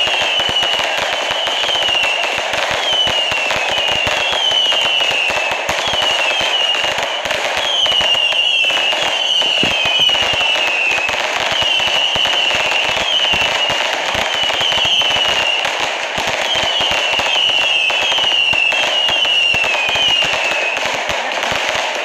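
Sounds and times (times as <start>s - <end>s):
fireworks crackling and banging: 0.0s - 22.0s.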